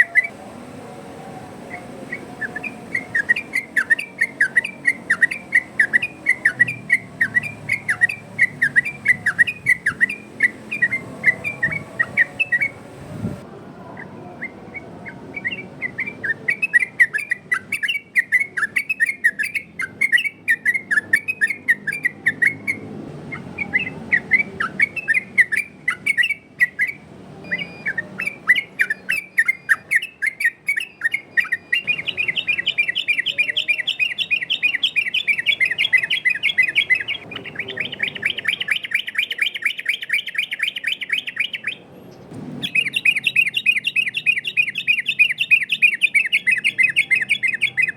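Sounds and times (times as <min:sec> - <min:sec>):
bulbul whistling song: 0:00.0 - 0:47.9.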